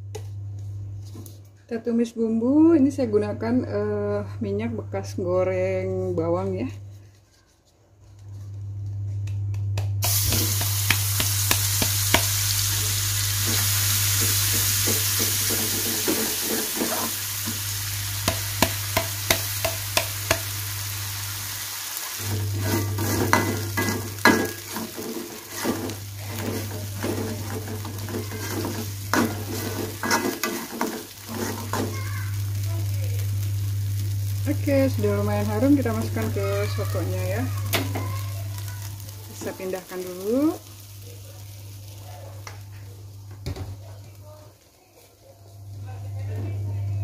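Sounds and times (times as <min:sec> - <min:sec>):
spice paste sizzling in oil: 0:10.0 - 0:43.3
spatula scraping wok: 0:13.4 - 0:20.6, 0:22.0 - 0:32.3.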